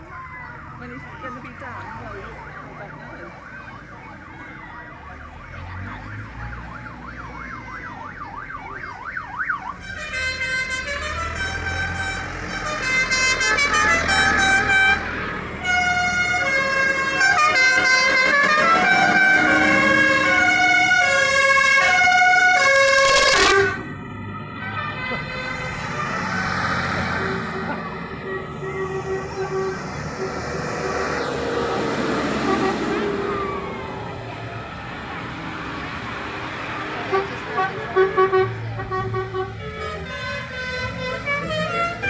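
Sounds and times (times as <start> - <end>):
multi-note horn playing a tune: 9.8 - 23.9, 27.2 - 31.0, 37.1 - 42.0
siren yelping: 24.4 - 35.4.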